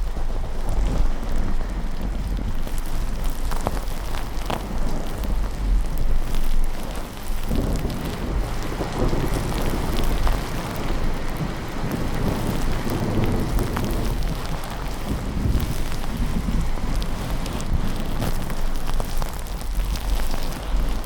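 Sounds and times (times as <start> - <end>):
steady rain: 0.0 - 21.0
rolling thunder: 7.3 - 20.1.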